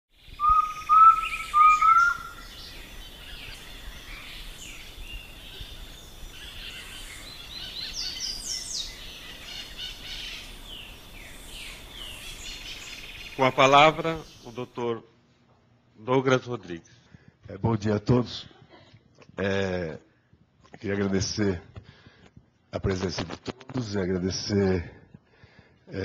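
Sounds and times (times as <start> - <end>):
loud whistled bird notes: 0.1 - 14.7
bird chirps and trills: 0.1 - 14.8.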